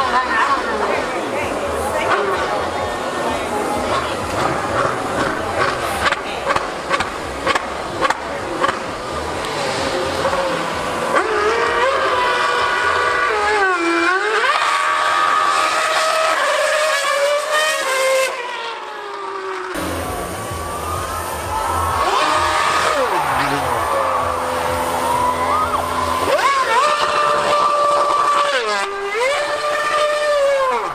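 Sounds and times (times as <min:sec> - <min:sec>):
high-revving racing engine: 0:00.0 - 0:30.9.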